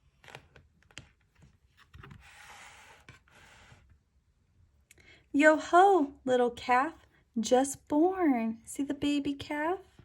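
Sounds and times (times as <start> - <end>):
paper rustling: 0.0 - 3.9.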